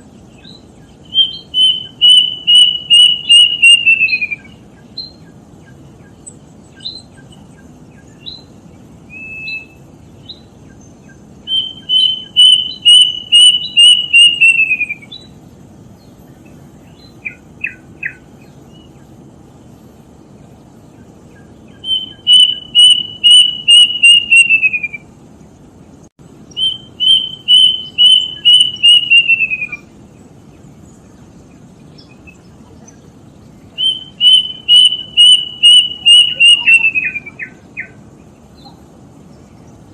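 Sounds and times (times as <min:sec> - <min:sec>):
cuckoo whistled song: 0:00.3 - 0:10.8, 0:11.4 - 0:15.4, 0:17.0 - 0:18.9, 0:21.3 - 0:25.1, 0:26.5 - 0:29.9, 0:33.7 - 0:38.0.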